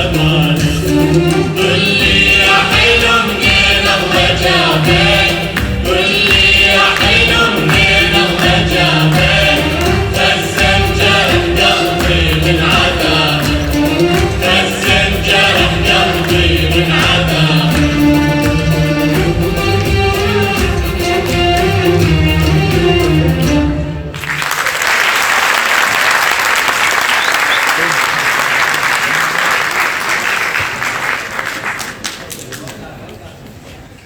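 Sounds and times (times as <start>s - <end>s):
hand percussion: 0.0s - 23.7s
choir singing: 0.0s - 24.2s
instrumental accompaniment: 0.0s - 24.4s.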